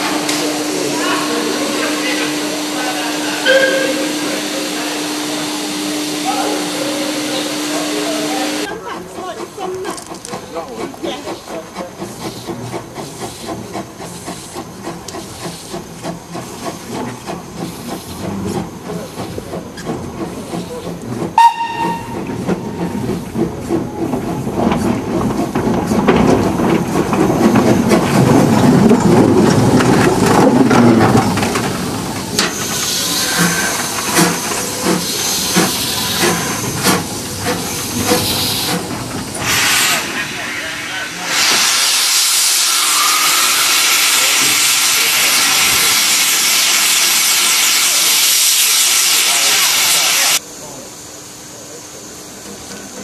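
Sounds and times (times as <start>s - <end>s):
steam hissing: 0.0s - 53.0s
steam locomotive running by: 0.0s - 53.0s
steam whistle toot: 3.4s - 4.3s, 21.4s - 22.2s, 42.6s - 44.3s
locomotive exhaust beats: 9.0s - 39.6s.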